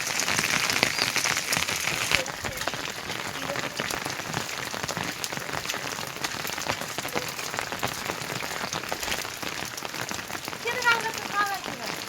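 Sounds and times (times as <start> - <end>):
heavy rain pattering: 0.0 - 12.0.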